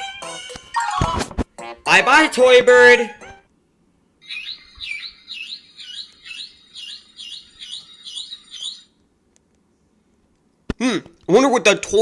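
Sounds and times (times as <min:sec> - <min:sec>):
electronic toy bird chirping: 0:04.2 - 0:09.0.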